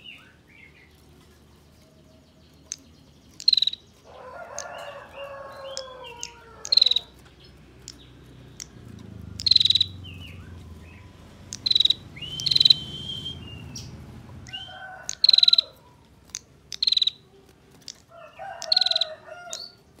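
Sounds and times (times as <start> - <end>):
bird rapid rattling calls: 2.7 - 12.9, 13.6 - 17.2, 17.8 - 20.0
chicken calling: 3.4 - 7.3, 9.3 - 19.8.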